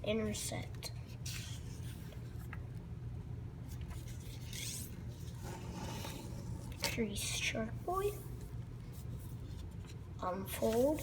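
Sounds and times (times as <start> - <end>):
steady low hum: 0.0 - 11.0
paper folding rustles: 0.9 - 2.8, 3.6 - 7.1, 7.9 - 11.0.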